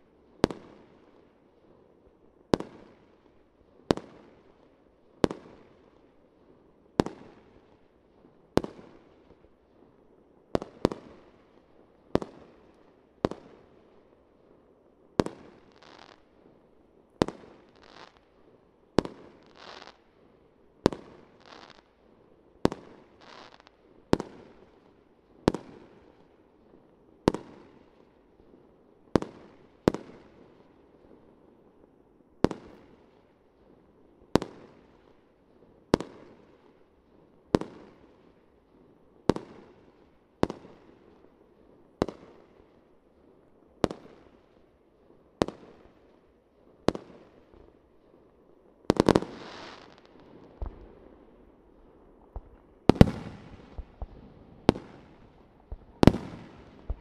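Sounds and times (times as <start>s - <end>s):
fireworks bangs: 52.3s - 57.0s.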